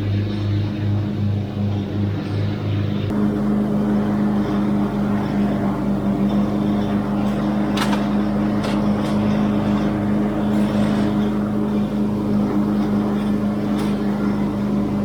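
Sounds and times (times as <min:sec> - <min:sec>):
small petrol engine running: 0:03.1 - 0:15.0.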